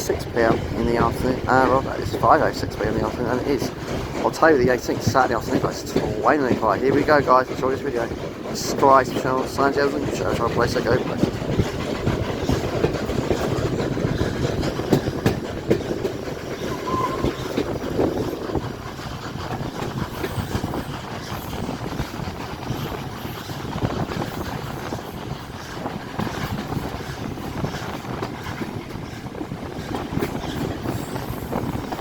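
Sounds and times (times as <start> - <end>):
train wheels rumbling and clattering: 0.0 - 32.0
high squeak: 16.6 - 17.6.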